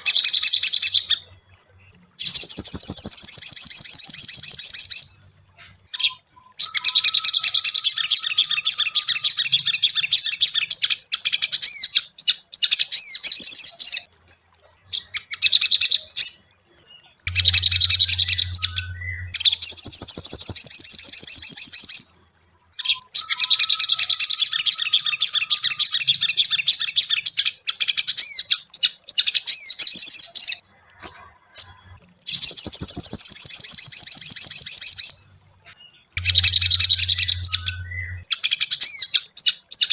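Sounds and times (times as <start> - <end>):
bird twittering trills: 0.0 - 39.9
low hum: 17.2 - 20.5, 36.2 - 38.3.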